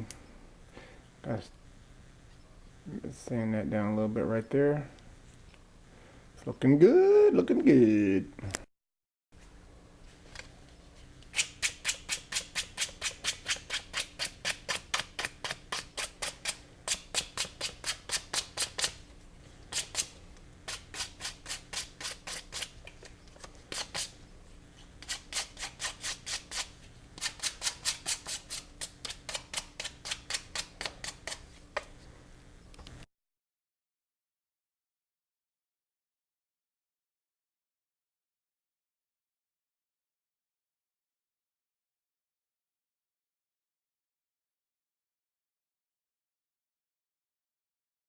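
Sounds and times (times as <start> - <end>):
sandpaper rubbing on wood: 11.4 - 19.0, 19.7 - 20.1, 20.7 - 22.8, 23.7 - 24.1, 25.0 - 31.4.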